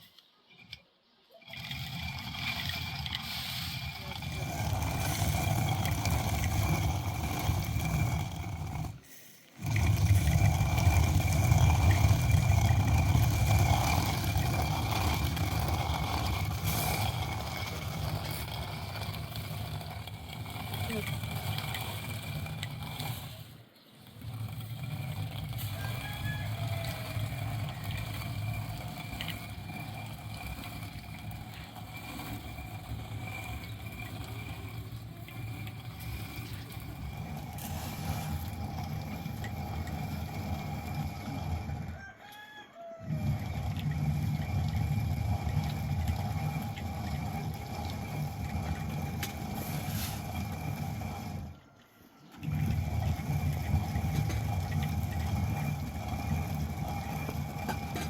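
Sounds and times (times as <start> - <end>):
rooster crowing: 25.6 - 27.8, 41.7 - 43.5.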